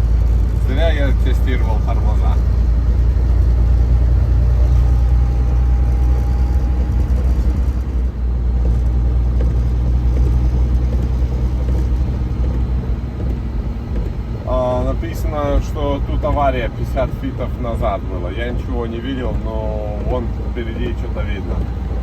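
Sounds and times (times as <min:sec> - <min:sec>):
road noise: 0:00.0 - 0:22.0
truck engine rumble: 0:00.0 - 0:22.0.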